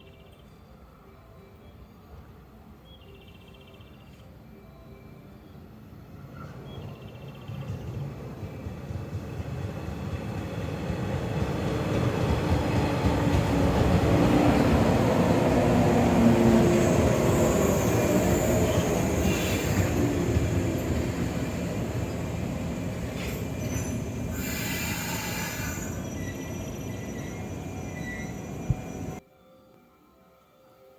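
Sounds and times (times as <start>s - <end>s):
train wheels rumbling on rails: 6.8s - 29.2s
high-pitched wheel squeals: 23.2s - 29.2s.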